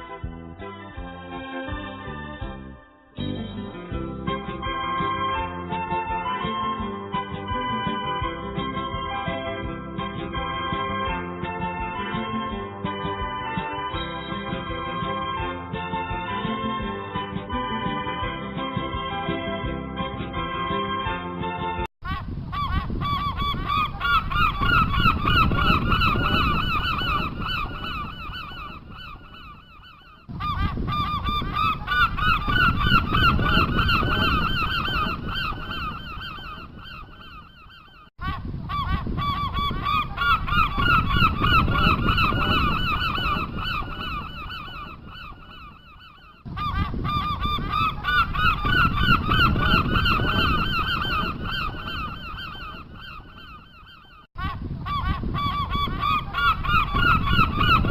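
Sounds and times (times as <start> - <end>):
geese honking: 22.5 - 37.4, 38.7 - 45.6, 54.9 - 57.9.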